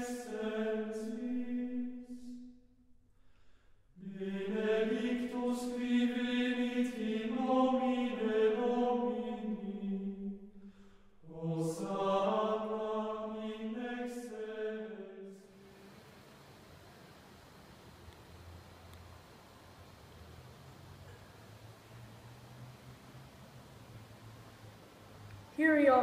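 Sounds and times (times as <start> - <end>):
chanted singing: 0.0 - 2.5, 4.0 - 10.5, 11.2 - 15.7.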